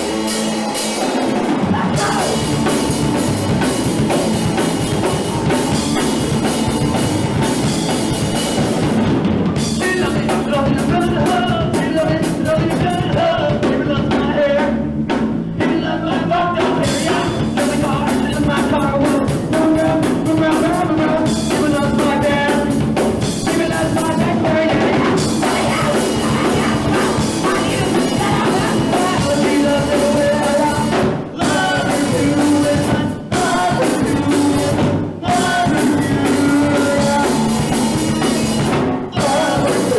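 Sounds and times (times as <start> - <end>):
drum kit: 0.0 - 39.9
punk rock band playing: 0.0 - 39.9
person singing: 1.6 - 3.6, 23.4 - 39.9.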